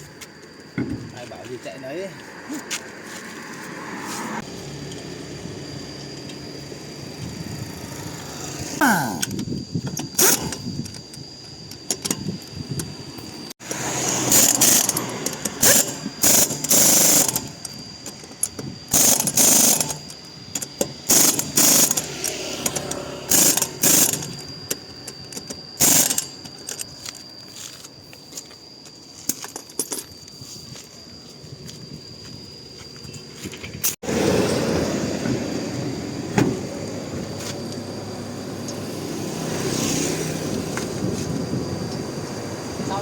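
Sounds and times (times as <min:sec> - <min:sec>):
impact wrench bursts: 0:10.0 - 0:11.0, 0:13.6 - 0:27.2.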